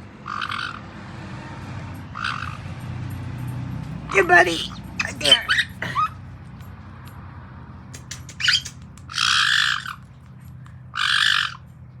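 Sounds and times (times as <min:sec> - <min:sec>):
parrot harsh squawks: 0:00.2 - 0:00.8, 0:02.2 - 0:02.6, 0:04.1 - 0:06.2, 0:08.0 - 0:10.0, 0:10.9 - 0:11.6
parrot chirp: 0:04.1 - 0:06.2, 0:08.0 - 0:10.0.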